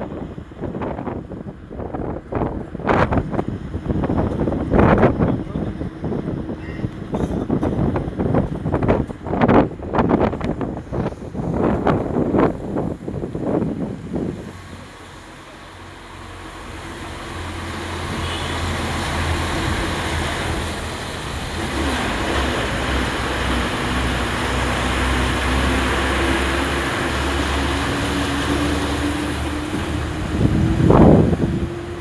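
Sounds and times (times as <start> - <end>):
road and wind noise: 0.0 - 32.0
vehicle engine running: 0.0 - 32.0.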